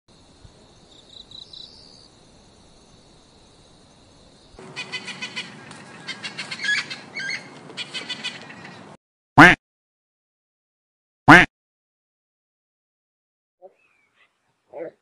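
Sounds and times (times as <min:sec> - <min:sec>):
birds chirping: 0:04.6 - 0:09.0, 0:13.6 - 0:15.0.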